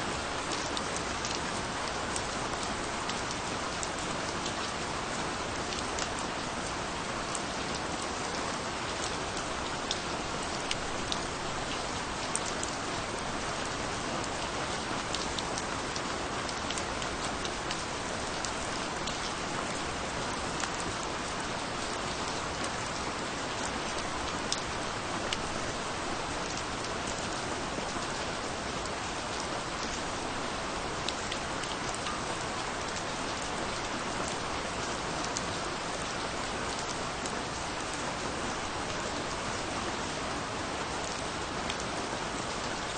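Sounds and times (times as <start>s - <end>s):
steady rainfall hiss: 0.0s - 42.9s.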